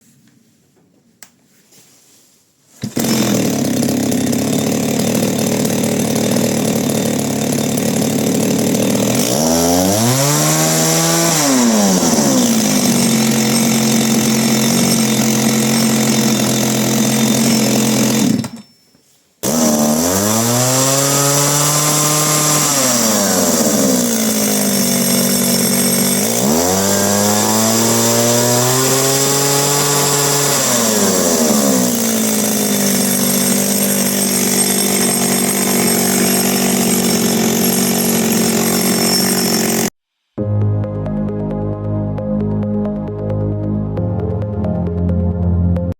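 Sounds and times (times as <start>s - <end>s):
chainsaw running: 2.8s - 18.7s, 19.4s - 40.0s.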